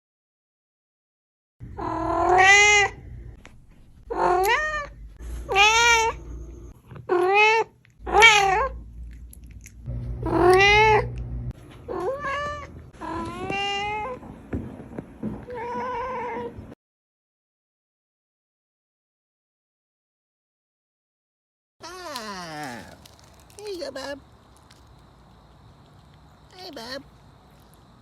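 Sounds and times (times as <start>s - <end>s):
cat meowing: 1.8s - 3.0s, 4.1s - 6.2s, 7.1s - 8.8s, 10.2s - 11.2s, 11.9s - 14.2s.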